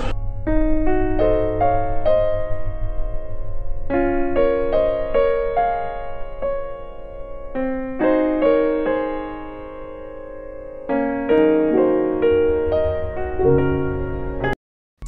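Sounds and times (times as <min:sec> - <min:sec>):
soft electric piano chords: 0:00.0 - 0:14.6.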